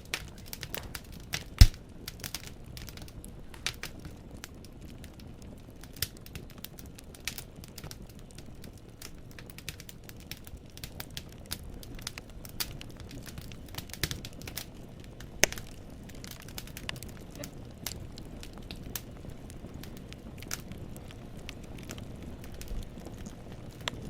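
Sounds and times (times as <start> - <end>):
burning logs snapping: 0.0 - 24.0
low rumble of flames: 0.0 - 24.0
loud fire pop: 0.6 - 1.8, 15.4 - 15.8.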